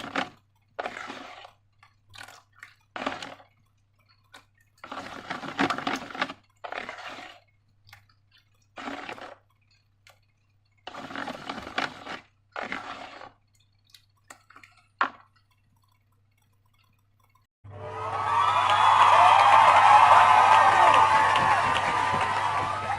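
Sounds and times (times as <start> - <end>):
slime squelching: 0.0 - 17.5.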